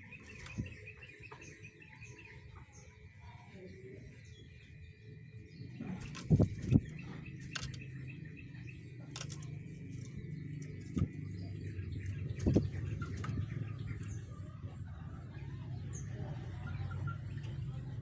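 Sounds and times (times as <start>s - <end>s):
bird chirping faintly: 0.0s - 18.0s
steady low hum: 0.0s - 18.0s
clicks: 6.0s - 7.8s, 9.1s - 14.2s.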